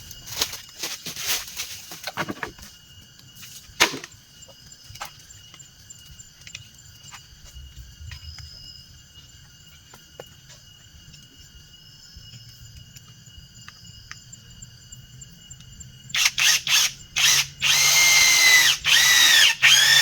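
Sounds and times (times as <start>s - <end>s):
high insect drone: 0.0s - 20.0s
wooden knocks and clattering: 1.8s - 2.7s.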